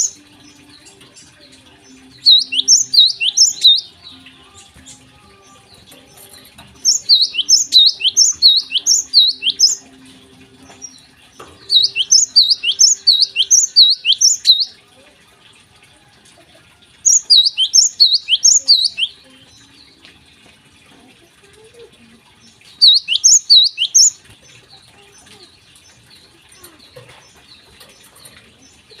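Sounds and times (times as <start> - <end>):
sparrow chirping: 0.0 - 0.2, 0.8 - 4.2, 6.1 - 9.9, 11.6 - 14.7, 17.1 - 19.2, 22.7 - 24.2.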